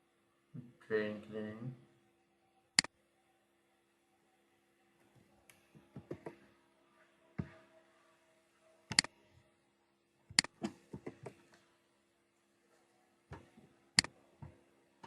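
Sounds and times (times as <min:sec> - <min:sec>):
mouse clicks: 0:05.4 - 0:06.4, 0:08.9 - 0:09.2, 0:10.3 - 0:11.4
keyboard keystrokes: 0:08.9 - 0:09.1.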